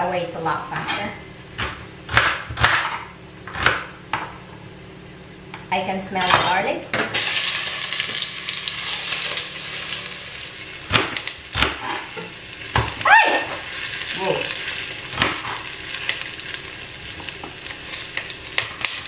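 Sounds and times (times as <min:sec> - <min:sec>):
garlic sizzling in hot oil: 0:07.1 - 0:19.0.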